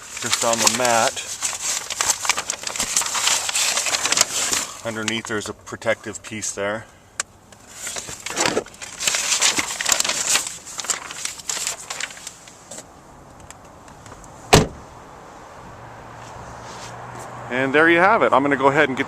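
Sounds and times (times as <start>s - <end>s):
rustling and handling noises: 0.0s - 6.5s, 7.5s - 14.4s, 16.2s - 17.3s
car door slamming: 14.5s - 14.9s.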